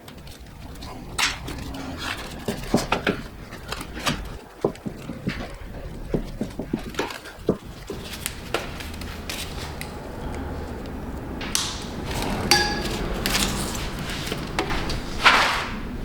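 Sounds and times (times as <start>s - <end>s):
metal tools clicking and knocking: 11.4s - 15.0s.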